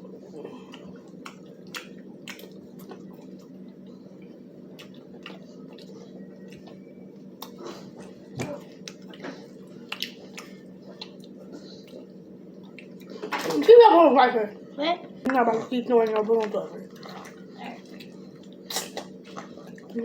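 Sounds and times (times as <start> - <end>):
person chewing crispy food: 0.6 - 4.0, 4.7 - 13.1, 16.9 - 20.0.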